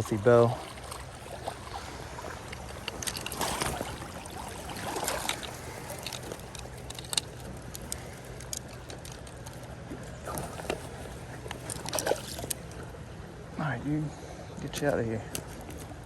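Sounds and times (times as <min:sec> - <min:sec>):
creek water running and splashing: 0:00.0 - 0:08.8, 0:09.7 - 0:13.2.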